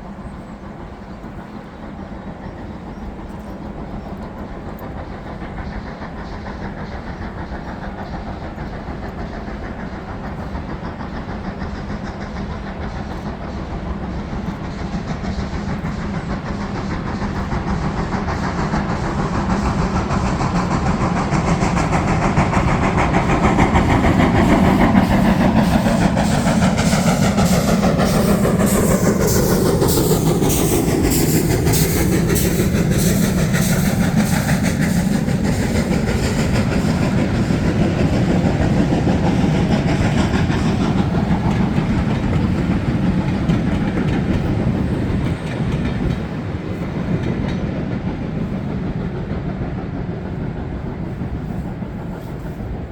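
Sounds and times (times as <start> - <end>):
steam train passing: 0.0 - 52.9
wheels clicking over rail joints: 2.6 - 51.2.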